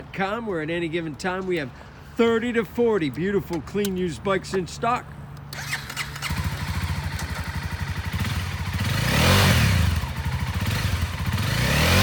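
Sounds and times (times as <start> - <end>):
motorcycle engine idling and revving: 5.5 - 12.0.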